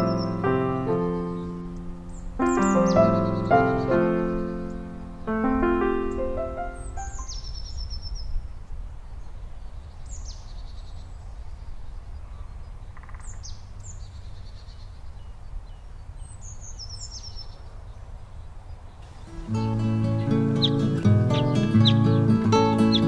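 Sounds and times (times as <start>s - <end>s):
high-pitched bird calls: 0.0s - 8.4s, 19.0s - 23.0s.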